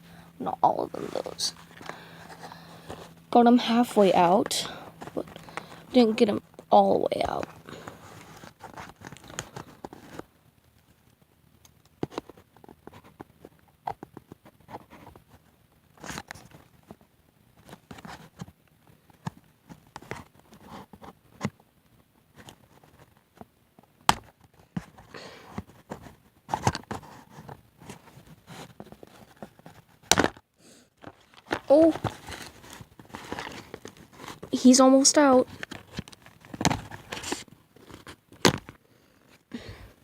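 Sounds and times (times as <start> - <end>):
packaging rustling and crinkling: 0.9 - 6.0, 6.6 - 10.3, 24.2 - 30.4, 31.0 - 34.6, 35.2 - 40.0.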